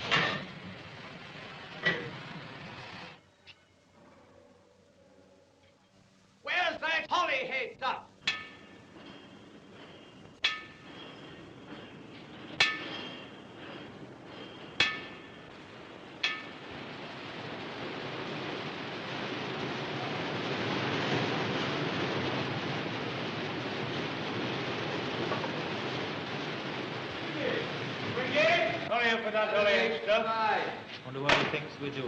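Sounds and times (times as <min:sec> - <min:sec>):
hammer striking metal: 0:08.2 - 0:11.4, 0:12.5 - 0:13.4, 0:14.7 - 0:15.5, 0:16.2 - 0:16.8
rushing hiss: 0:11.2 - 0:32.0.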